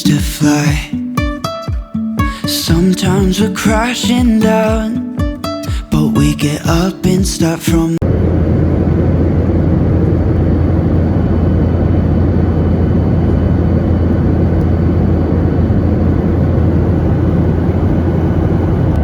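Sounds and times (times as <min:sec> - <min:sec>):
airliner engine noise in cabin: 0:08.0 - 0:19.0.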